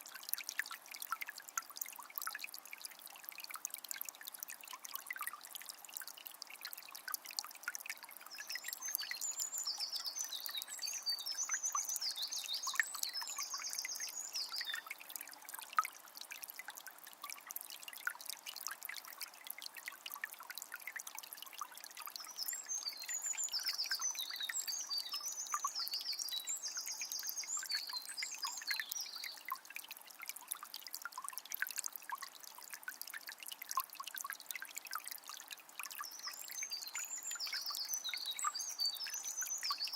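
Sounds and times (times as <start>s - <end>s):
spring water trickling and splashing: 0.0s - 39.9s
songbird singing: 8.3s - 15.0s, 22.1s - 29.6s, 36.0s - 39.9s.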